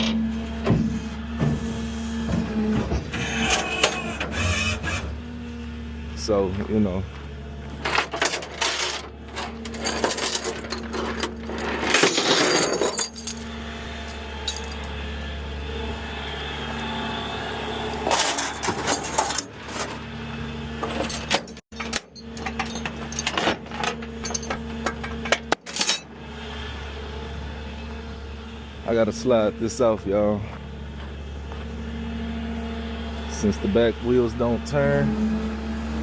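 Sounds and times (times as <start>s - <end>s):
truck engine running: 0.0s - 11.9s, 12.7s - 36.0s
metallic clanks and rattles: 7.7s - 15.0s, 18.0s - 20.0s, 20.8s - 26.1s.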